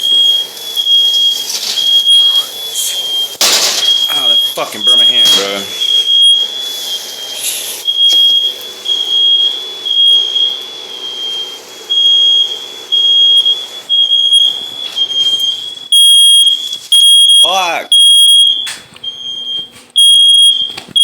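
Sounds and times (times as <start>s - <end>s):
smoke alarm beeping: 0.0s - 21.0s.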